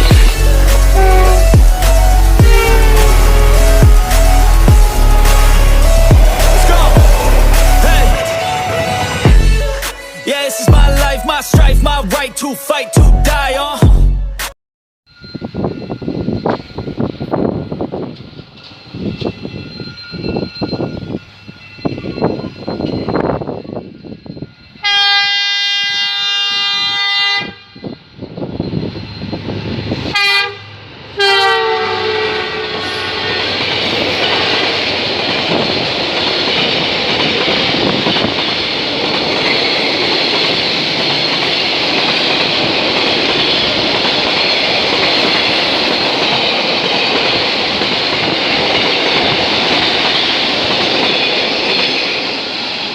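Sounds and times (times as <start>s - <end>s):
locomotive horn blasts: 0.0s - 9.8s, 24.8s - 28.0s, 30.1s - 33.6s.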